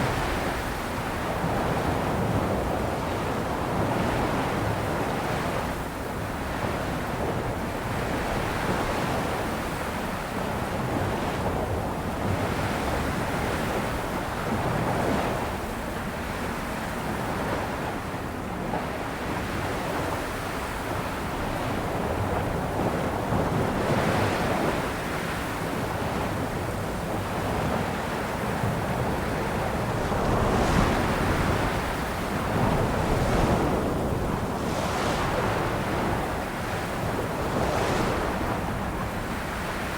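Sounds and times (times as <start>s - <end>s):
sea waves breaking: 26.5s - 39.9s.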